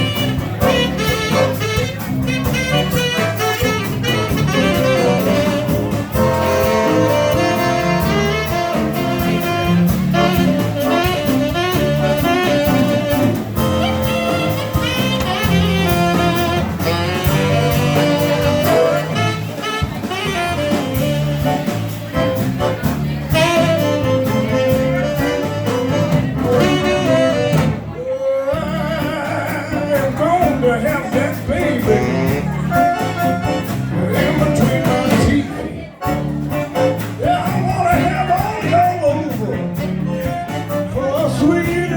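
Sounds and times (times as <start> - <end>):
saxophone: 0.0 - 41.9
zydeco band playing live: 0.0 - 41.9
person singing: 28.0 - 32.8, 33.9 - 35.9.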